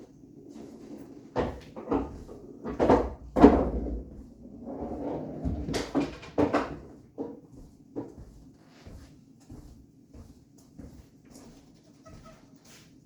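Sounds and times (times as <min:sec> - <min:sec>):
pool balls knocking: 0:01.3 - 0:07.4.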